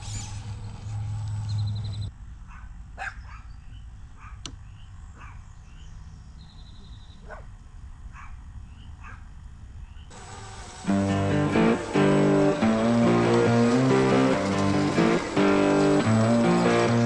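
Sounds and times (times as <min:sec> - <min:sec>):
faint dog barks: 0:02.4 - 0:03.6, 0:04.2 - 0:04.5, 0:05.2 - 0:05.5, 0:07.2 - 0:08.4, 0:09.0 - 0:09.3.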